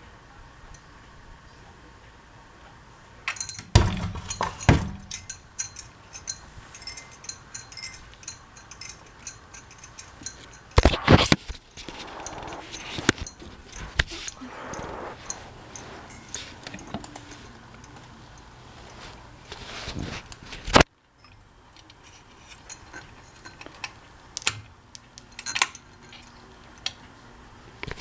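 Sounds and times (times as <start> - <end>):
ceiling fan humming: 0.0 - 28.0
metallic clicks and clinks: 3.3 - 11.0, 21.2 - 24.0, 25.2 - 26.9.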